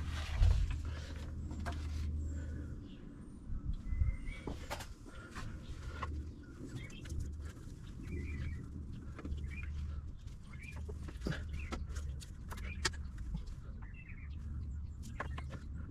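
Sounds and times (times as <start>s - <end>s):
bird chirps: 6.3s - 15.7s.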